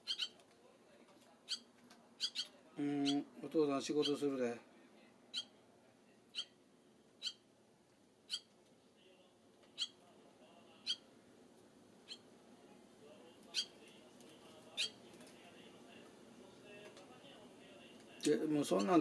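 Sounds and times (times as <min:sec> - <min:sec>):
swallow chirping: 0:00.0 - 0:00.4, 0:01.4 - 0:03.3, 0:05.3 - 0:05.6, 0:06.3 - 0:06.6, 0:07.2 - 0:07.5, 0:10.8 - 0:11.1, 0:12.0 - 0:12.3, 0:13.5 - 0:13.8, 0:14.7 - 0:15.0.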